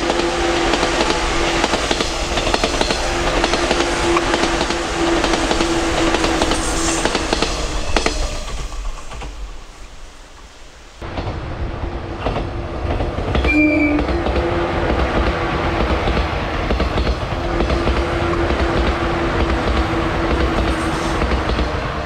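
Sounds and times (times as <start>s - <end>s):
electric train rumbling past: 0.0s - 22.0s
whistle-like tone: 13.5s - 14.1s.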